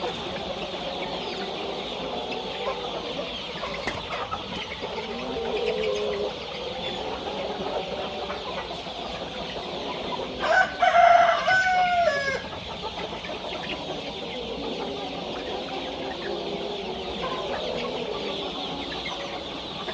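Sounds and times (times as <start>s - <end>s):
chickens clucking: 0.0s - 19.9s
rooster crowing: 10.4s - 12.5s.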